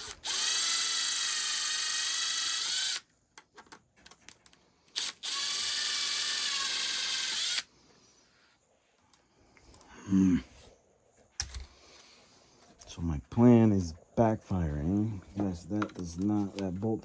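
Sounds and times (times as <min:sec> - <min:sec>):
electric power driver whirring: 0:00.0 - 0:03.1, 0:04.9 - 0:07.7.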